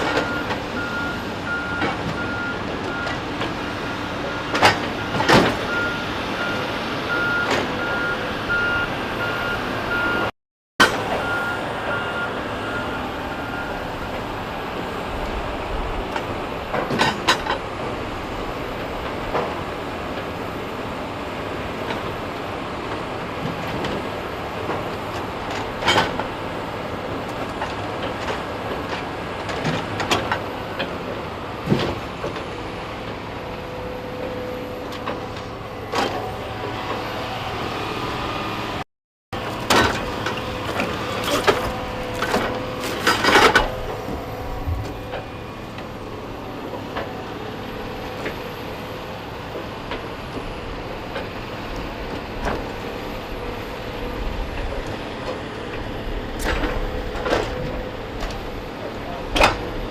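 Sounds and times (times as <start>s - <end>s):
heavy machinery running: 0.0s - 38.8s, 39.4s - 59.9s
metallic clanks and knocks: 39.6s - 45.3s.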